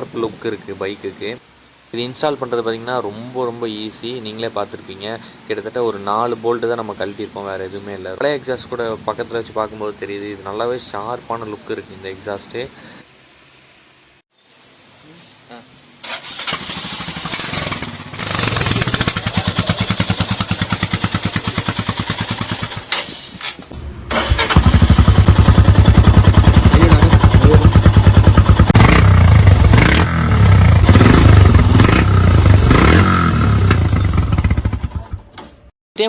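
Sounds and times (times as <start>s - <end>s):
motorcycle engine running loud: 17.2s - 23.0s, 24.6s - 35.3s.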